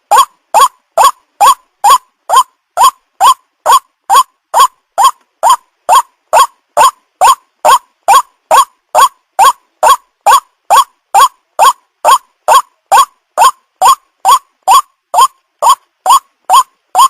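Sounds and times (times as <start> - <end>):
waterhen call recording: 0.0 - 17.0.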